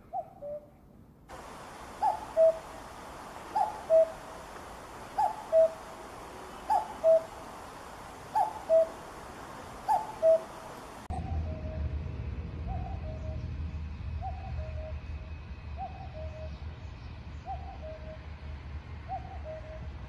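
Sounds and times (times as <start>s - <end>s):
cuckoo calling: 1.3s - 11.7s.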